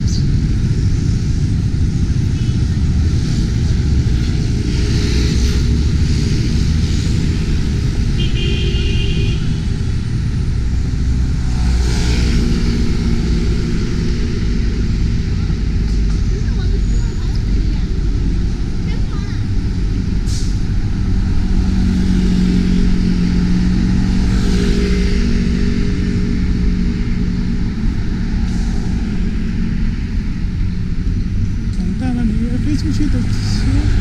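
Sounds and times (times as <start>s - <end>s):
loud low rumble: 0.0s - 34.0s.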